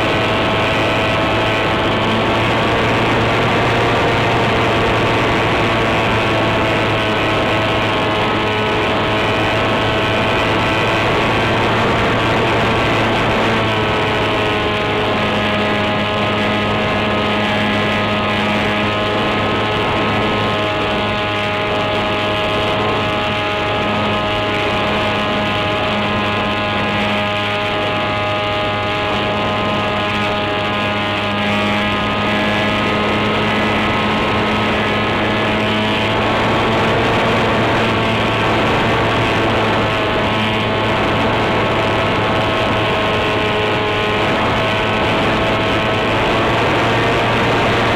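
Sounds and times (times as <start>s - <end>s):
electric motor whine: 0.0s - 47.9s
propeller air rush: 0.0s - 47.9s.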